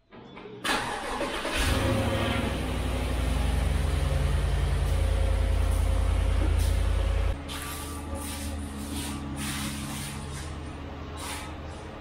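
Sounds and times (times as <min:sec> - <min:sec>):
car engine idling: 0:00.7 - 0:07.4.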